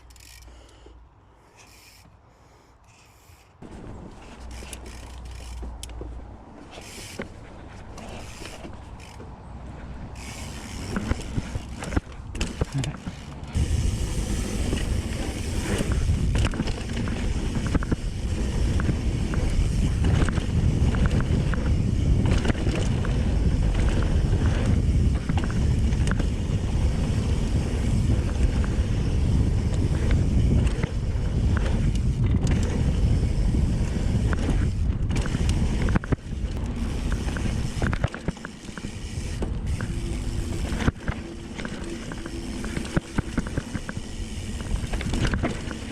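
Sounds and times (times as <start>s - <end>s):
bike tyres rumbling on dirt: 3.6s - 45.9s.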